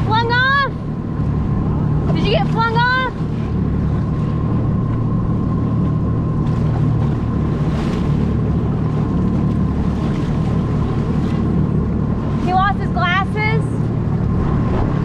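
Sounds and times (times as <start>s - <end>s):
jet ski engine running: 0.0s - 15.0s
wind on microphone: 13.8s - 15.0s.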